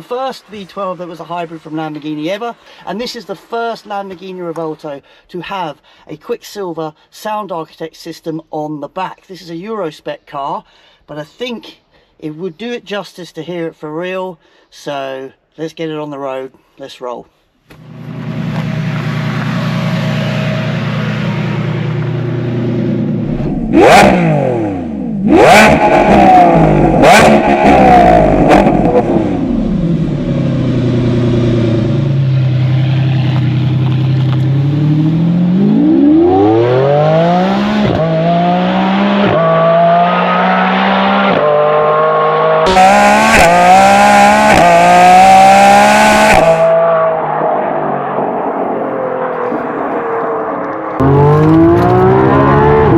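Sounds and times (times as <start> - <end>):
exhaust cracks: 0.0 - 4.9, 17.7 - 39.8, 49.3 - 52.9
sports car engine revving: 17.7 - 52.9.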